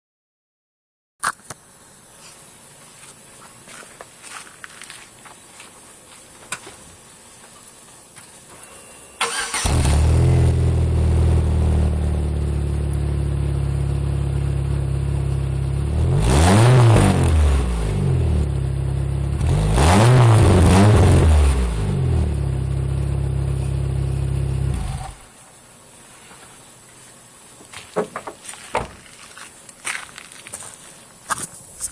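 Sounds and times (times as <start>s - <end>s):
car engine idling and revving: 8.0s - 25.8s.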